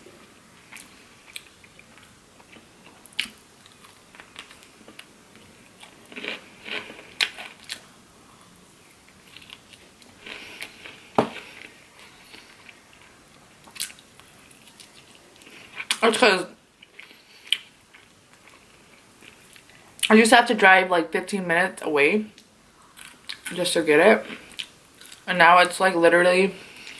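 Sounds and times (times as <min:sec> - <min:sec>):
chewing crispy fried chicken: 0:00.6 - 0:16.0, 0:16.8 - 0:20.1.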